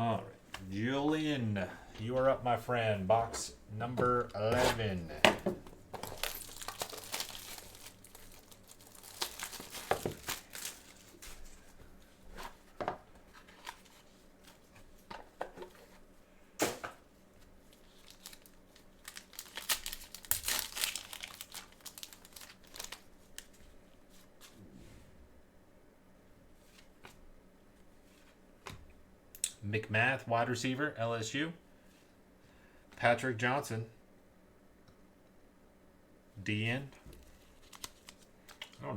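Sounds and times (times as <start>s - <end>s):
cardboard being handled: 3.2s - 11.5s
plastic wrapping crinkling and tearing: 6.0s - 11.6s, 17.7s - 23.6s, 37.4s - 38.8s.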